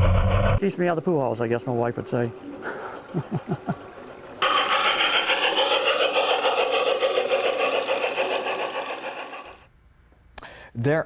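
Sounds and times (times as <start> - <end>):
model train whirring and rattling: 4.4 - 9.7.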